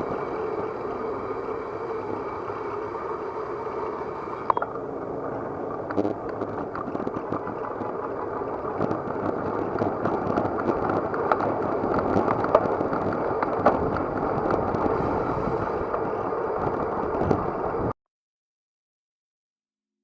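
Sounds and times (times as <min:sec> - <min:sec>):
wind and road noise: 0:00.0 - 0:18.0
bicycle rattling clicks: 0:05.7 - 0:14.9.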